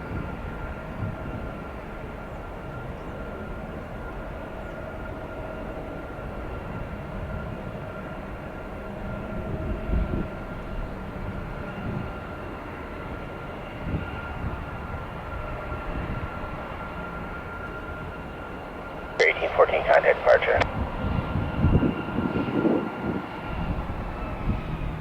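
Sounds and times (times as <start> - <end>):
jet engines rumbling and whining: 0.0 - 25.0.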